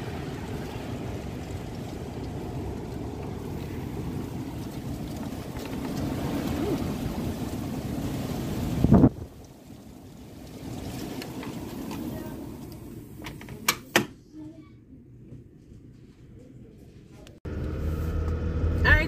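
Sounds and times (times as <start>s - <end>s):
storm wind buffeting microphone: 0.0s - 13.2s.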